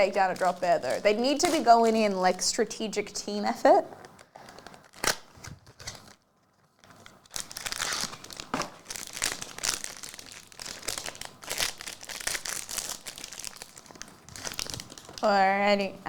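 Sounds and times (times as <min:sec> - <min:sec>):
card pack wrapper crinkling and tearing: 0:00.0 - 0:02.2, 0:04.1 - 0:06.2, 0:06.8 - 0:15.2.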